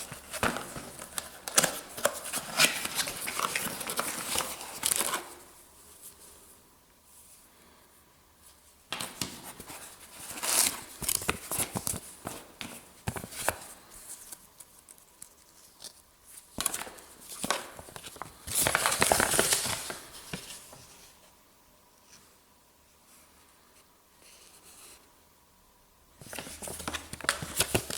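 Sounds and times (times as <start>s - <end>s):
packaging crinkling and tearing: 0.0s - 5.4s, 9.0s - 12.5s, 16.6s - 20.5s, 26.2s - 27.9s.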